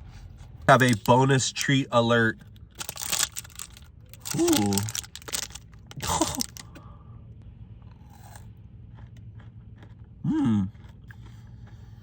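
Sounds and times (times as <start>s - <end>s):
person chewing crunchy food: 2.8s - 6.8s, 7.7s - 12.0s.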